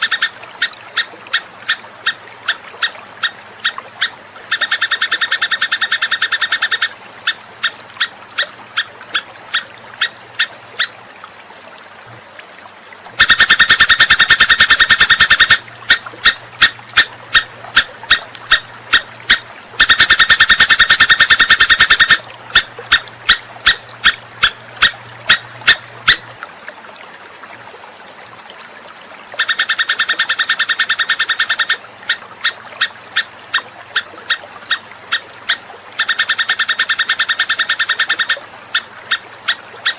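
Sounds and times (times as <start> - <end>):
songbird rattling trill: 13.2 - 17.4, 19.8 - 22.2.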